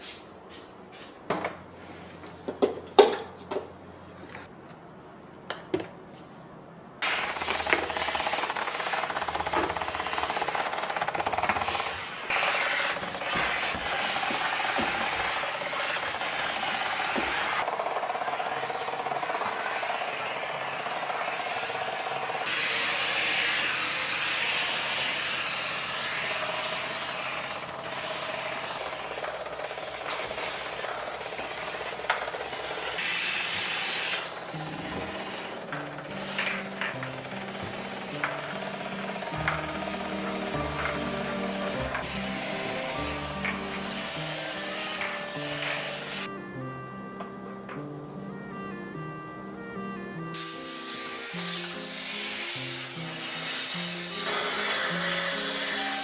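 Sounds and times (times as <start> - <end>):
steam cleaner humming: 7.0 - 46.3, 50.3 - 56.0
loud hiss of steam: 22.4 - 29.2, 32.9 - 36.6, 40.5 - 46.3, 50.4 - 56.0.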